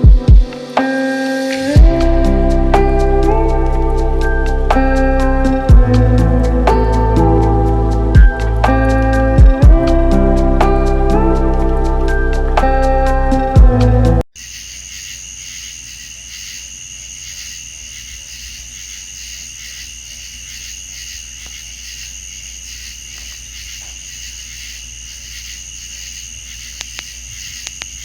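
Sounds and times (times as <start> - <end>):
insects trilling: 14.4 - 28.0.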